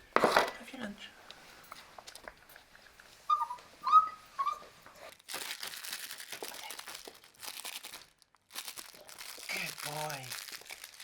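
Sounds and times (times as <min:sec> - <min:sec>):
puppy whimpering: 0:03.3 - 0:04.8
crinkling rustle: 0:04.8 - 0:11.0.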